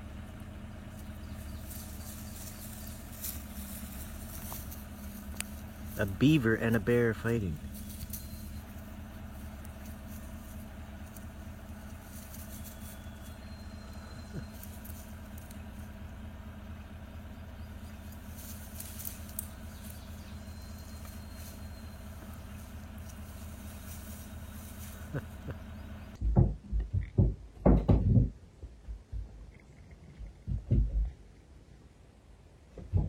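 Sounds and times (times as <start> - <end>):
low engine hum: 0.0 - 33.0
faint clicks and crackles: 1.0 - 5.9, 17.8 - 26.2.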